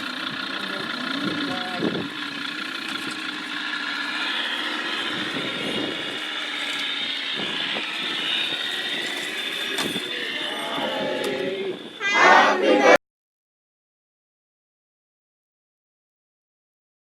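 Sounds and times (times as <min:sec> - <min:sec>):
motor drone with high whine: 0:00.0 - 0:13.0.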